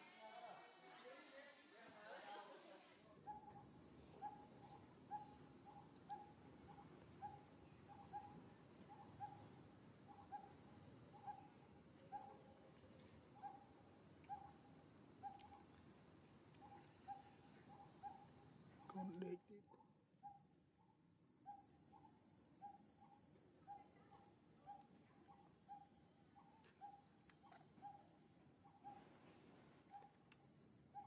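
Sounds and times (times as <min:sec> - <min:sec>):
steady high hiss: 0:00.0 - 0:07.8.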